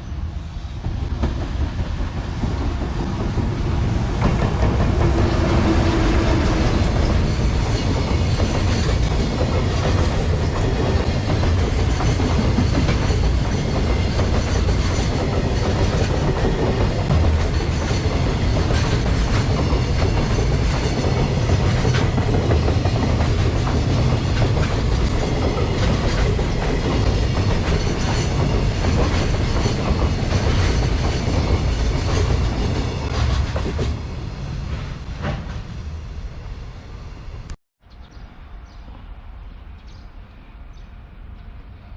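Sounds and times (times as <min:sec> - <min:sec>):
train wheels rumbling on rails: 0:00.0 - 0:37.6.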